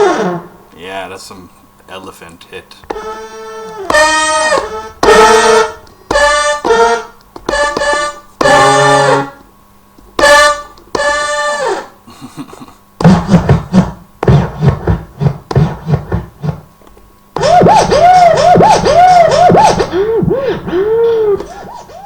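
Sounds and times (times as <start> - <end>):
rhythmic percussive synth hits: 13.0 - 16.6, 17.4 - 21.7
swooping record scratching sound: 13.0 - 16.7, 17.4 - 22.0.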